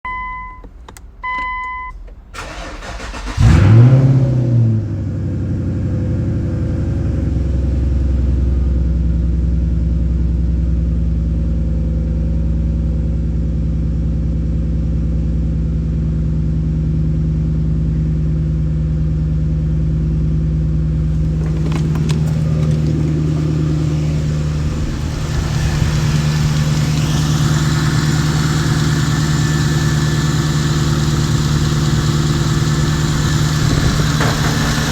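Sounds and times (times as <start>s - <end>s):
short electronic beeps: 0.1s - 2.0s
car engine starting and idling: 0.1s - 11.5s, 20.8s - 34.9s.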